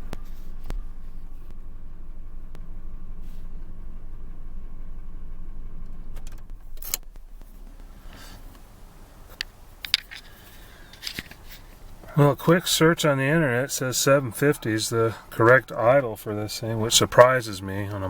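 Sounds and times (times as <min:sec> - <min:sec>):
truck engine idling: 0:00.0 - 0:18.0
sharp clicks and knocks: 0:09.3 - 0:12.1.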